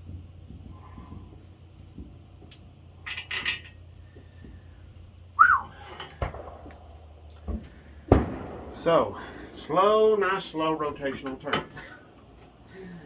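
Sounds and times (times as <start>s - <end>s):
metal tools clinking: 3.0s - 3.9s.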